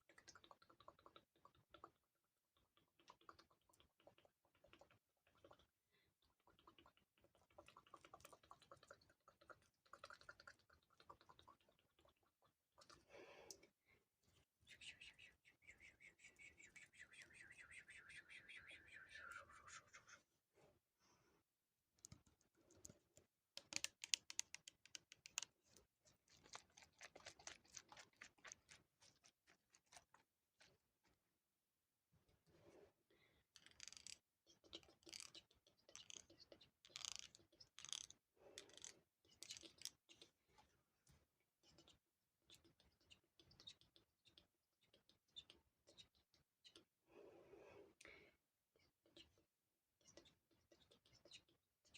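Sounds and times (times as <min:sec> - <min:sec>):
rapid small clicking and tapping: 0:22.0 - 0:30.0, 0:33.6 - 0:40.2.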